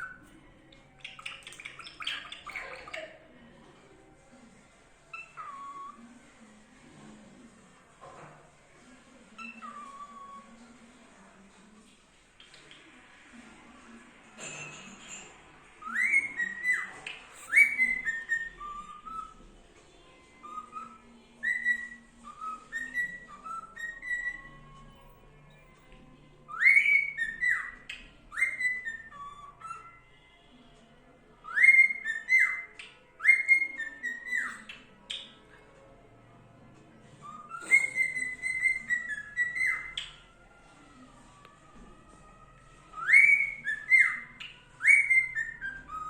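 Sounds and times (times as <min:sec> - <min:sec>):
cockatiel whistling a tune: 0:00.0 - 0:00.3, 0:05.1 - 0:06.0, 0:09.4 - 0:10.5, 0:15.8 - 0:19.5, 0:20.4 - 0:24.9, 0:26.4 - 0:30.3, 0:31.4 - 0:35.4, 0:37.2 - 0:40.3, 0:42.8 - 0:46.0.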